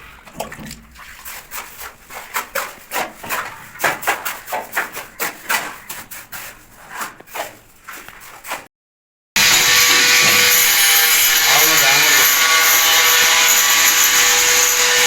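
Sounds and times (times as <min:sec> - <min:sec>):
scraping and tapping on hard material: 0:00.4 - 0:08.7.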